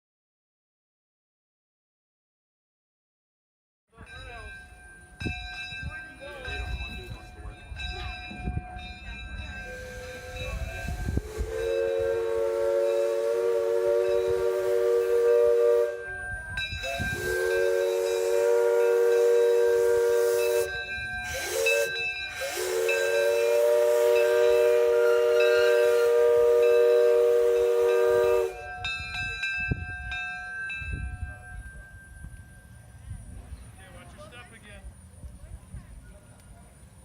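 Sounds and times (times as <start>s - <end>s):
steam locomotive chime whistle: 4.0s - 33.0s
hiss of steam: 9.6s - 15.7s, 16.8s - 27.9s.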